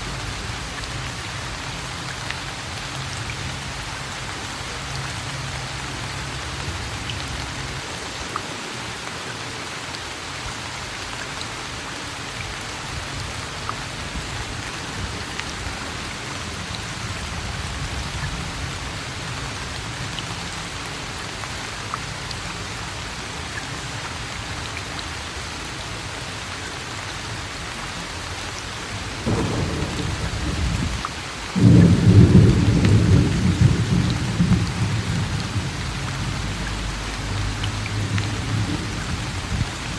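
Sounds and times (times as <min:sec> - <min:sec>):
steady rain: 0:00.0 - 0:39.9
raindrops ticking: 0:27.5 - 0:39.9
thunder rumbling: 0:29.2 - 0:39.9.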